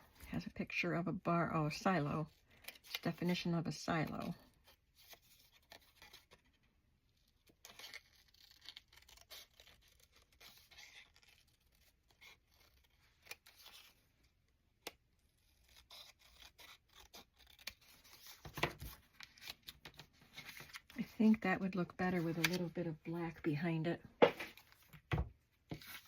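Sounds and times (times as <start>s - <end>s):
paper rustling and scraping: 15.4s - 23.4s, 24.2s - 26.0s.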